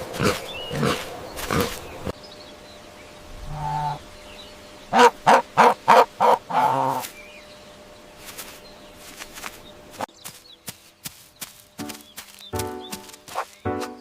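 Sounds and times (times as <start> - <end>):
fowl calling: 3.4 - 4.1, 4.9 - 7.2.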